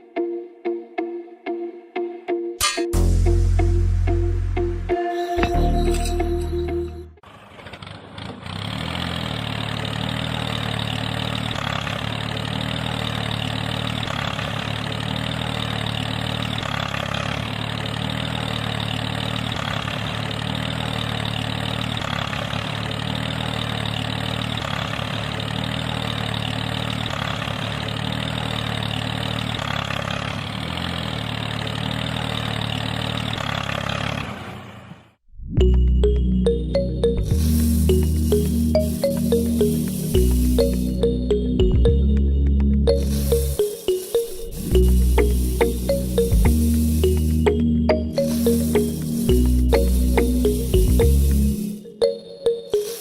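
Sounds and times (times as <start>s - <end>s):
small motor running: 43.0s - 47.6s, 48.2s - 51.8s.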